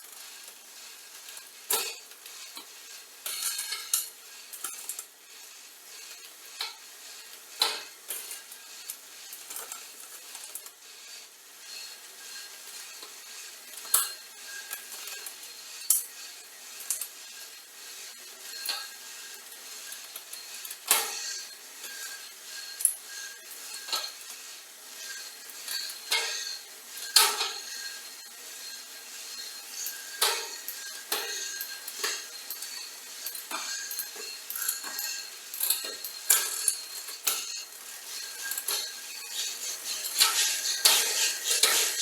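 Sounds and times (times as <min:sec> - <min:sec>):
metal bicycle parts clinking: 0:25.6 - 0:28.2, 0:28.8 - 0:42.0
rattling scrapes: 0:25.7 - 0:42.0.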